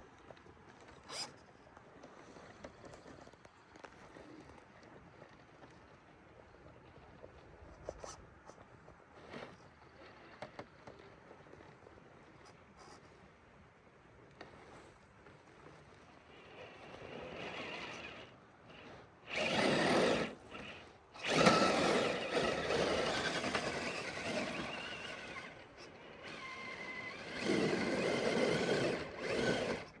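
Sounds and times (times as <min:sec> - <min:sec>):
faint steady whine: 0:00.0 - 0:30.0
toy car motor and gears whirring: 0:01.0 - 0:01.4, 0:16.3 - 0:30.0.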